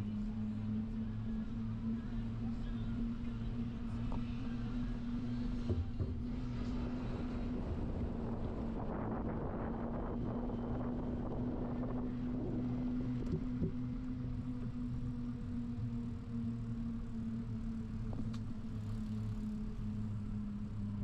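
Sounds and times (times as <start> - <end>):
wind rushing over microphone: 6.8 - 13.4.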